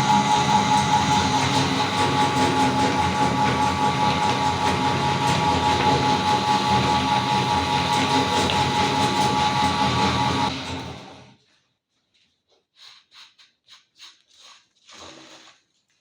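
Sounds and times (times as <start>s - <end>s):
meat grinder motor whining: 0.0s - 11.3s.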